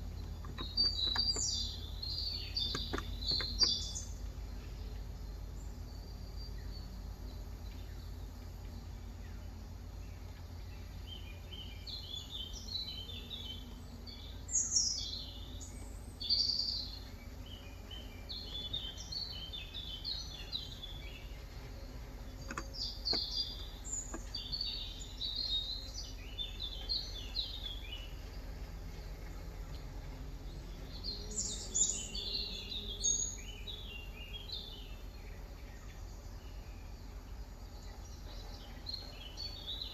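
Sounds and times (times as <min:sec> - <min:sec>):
small birds chirping: 0:00.0 - 0:39.9
steady low hum: 0:00.0 - 0:39.9
faint clicks: 0:21.3 - 0:26.0, 0:28.2 - 0:31.0.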